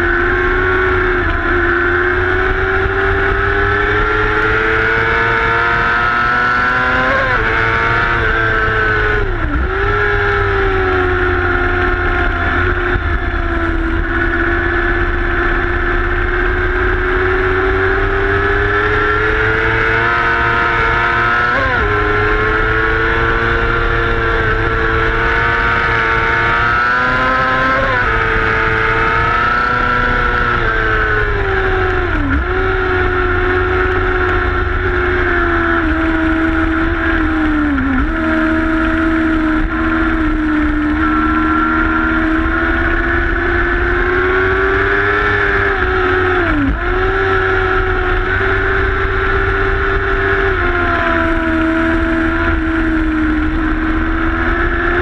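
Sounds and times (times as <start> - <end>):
racing motorcycle engine: 0.0 - 55.0
wind rumble on microphone: 0.0 - 55.0.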